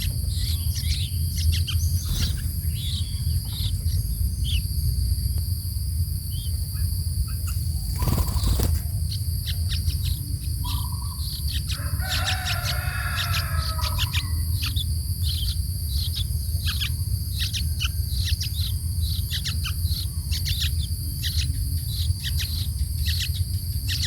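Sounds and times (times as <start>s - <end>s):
bird chirps: 0.0s - 4.8s, 6.3s - 24.0s
low rumble: 0.0s - 11.4s
high insect drone: 0.0s - 24.0s
bird call: 6.3s - 15.5s.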